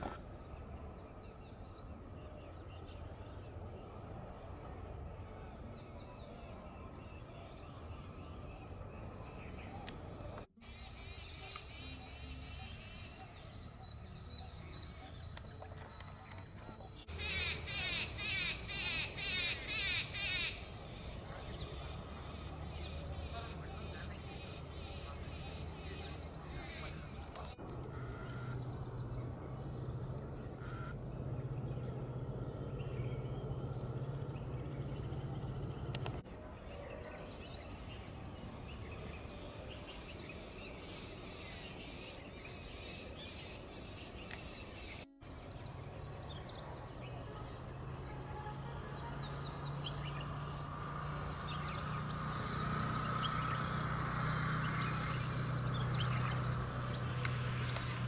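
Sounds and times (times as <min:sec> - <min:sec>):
small birds chirping: 0:00.0 - 0:27.6, 0:48.9 - 0:58.0
steady low hum: 0:00.0 - 0:47.4.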